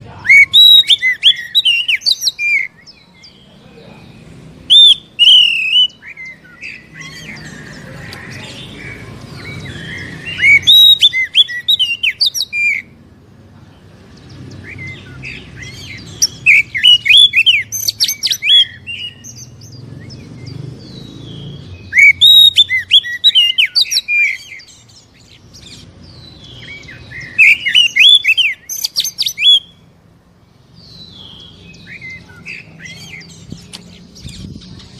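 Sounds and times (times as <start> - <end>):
bird singing whistles: 0.2 - 3.0, 4.7 - 8.5, 9.4 - 12.9, 14.6 - 24.8, 26.4 - 29.8.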